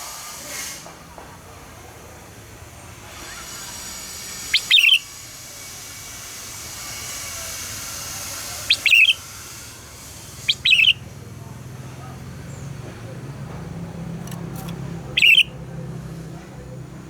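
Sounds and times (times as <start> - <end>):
bird singing: 4.5 - 5.0, 8.5 - 9.3, 10.3 - 11.1, 14.2 - 15.7.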